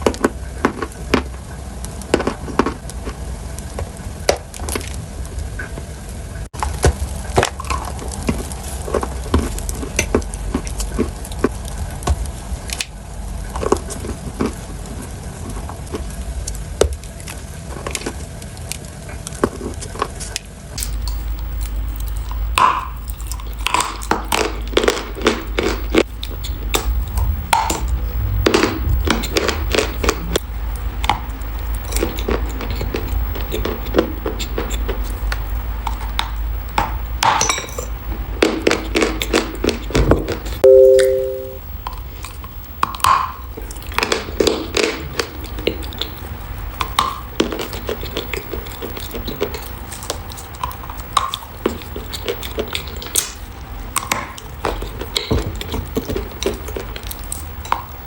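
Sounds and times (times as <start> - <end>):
utensils clicking against dishes: 51.2 - 53.4.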